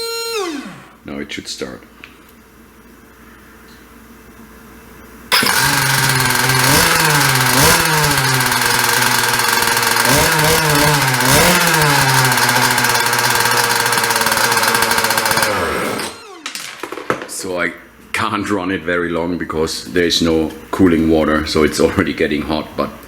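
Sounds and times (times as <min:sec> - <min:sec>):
two-stroke engine starting and revving: 0:00.0 - 0:01.0, 0:05.3 - 0:16.4.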